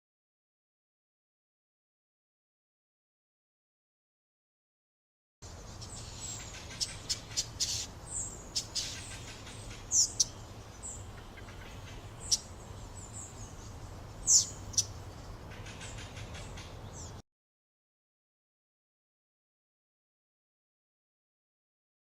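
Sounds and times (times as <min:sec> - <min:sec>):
songbird chirping: 0:05.4 - 0:17.2.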